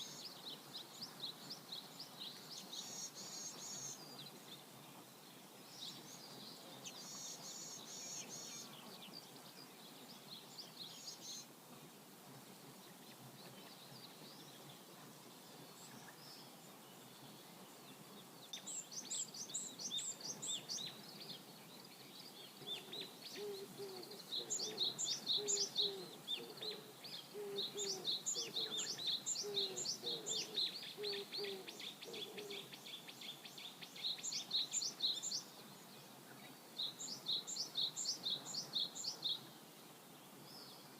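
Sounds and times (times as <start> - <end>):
lower bird call: 22.7 - 33.1.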